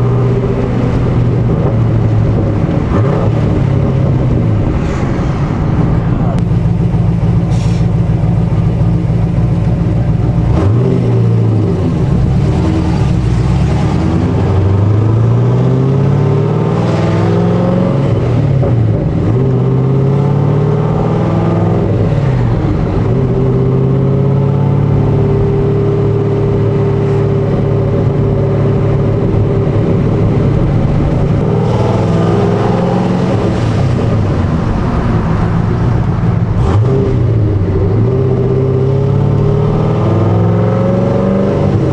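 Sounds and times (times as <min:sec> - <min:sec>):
car engine accelerating and shifting: 0:00.0 - 0:41.9.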